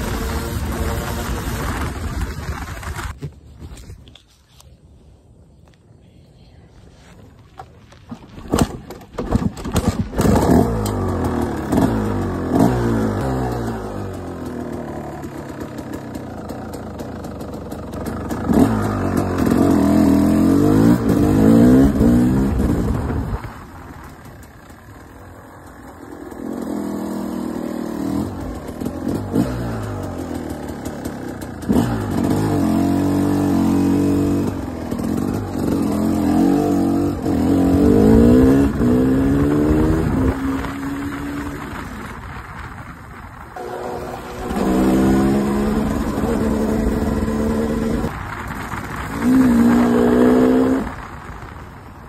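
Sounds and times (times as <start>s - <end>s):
two-stroke motorcycle engine revving: 0.0s - 3.2s, 9.3s - 42.8s, 43.4s - 51.6s.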